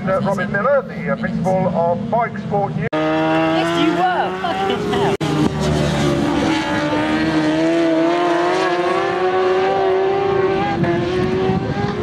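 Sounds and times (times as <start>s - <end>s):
superbike engines at high revs: 2.7s - 12.0s.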